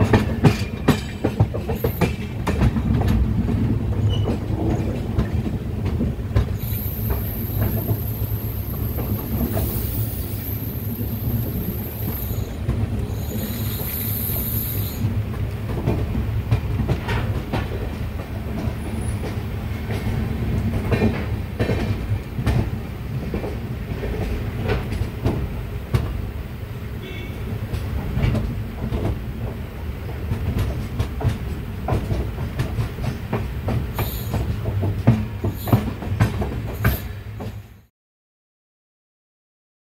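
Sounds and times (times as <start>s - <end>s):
wheels clattering over rail joints: 0.0s - 7.8s
train rumbling: 0.0s - 37.9s.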